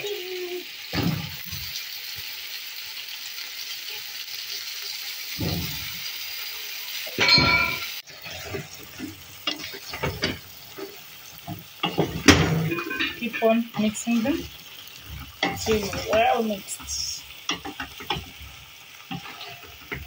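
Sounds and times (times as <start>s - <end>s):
sauce sizzling in a pot: 0.0s - 20.0s
wooden spoon scraping a pot: 7.2s - 20.0s.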